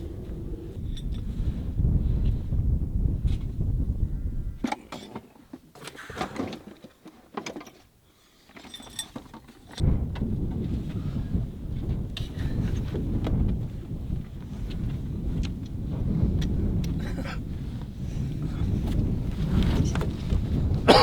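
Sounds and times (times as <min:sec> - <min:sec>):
wind buffeting microphone: 0:00.0 - 0:04.7, 0:09.8 - 0:21.0.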